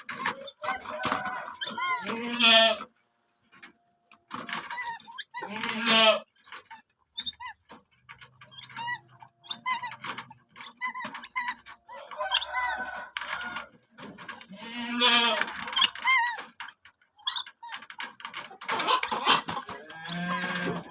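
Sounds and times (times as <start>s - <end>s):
cormorants bleating calls: 2.0s - 2.8s, 14.5s - 15.5s.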